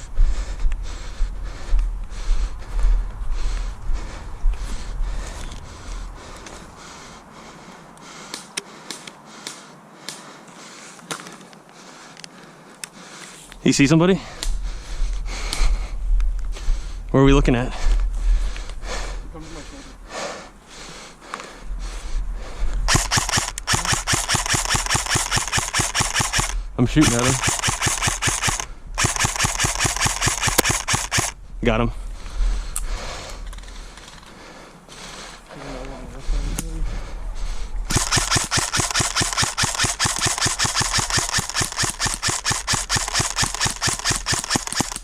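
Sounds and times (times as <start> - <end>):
airsoft rifle firing full auto: 22.9 - 31.4, 37.9 - 45.0.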